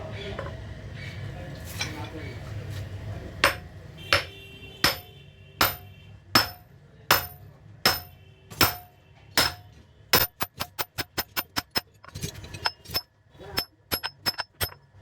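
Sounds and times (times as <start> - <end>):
hammer blows on metal: 3.4 - 11.7.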